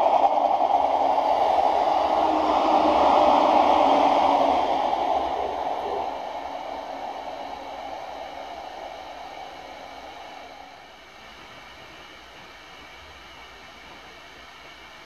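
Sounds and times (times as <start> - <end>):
electric train rolling away: 0.0 - 11.1.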